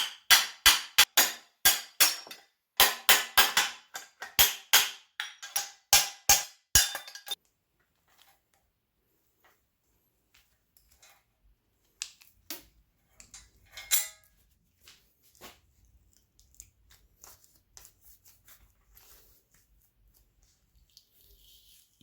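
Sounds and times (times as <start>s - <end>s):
ringing metallic clink: 13.7s - 14.3s.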